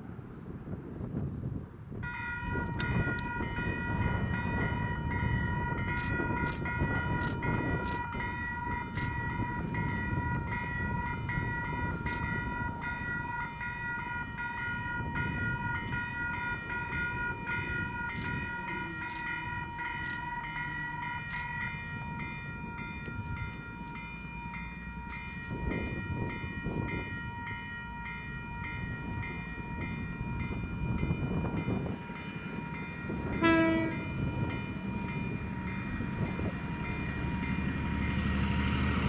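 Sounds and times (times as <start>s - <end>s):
scattered clicks: 6.0s - 8.0s, 8.9s - 9.2s, 12.0s - 12.3s, 18.1s - 18.4s, 20.0s - 20.2s.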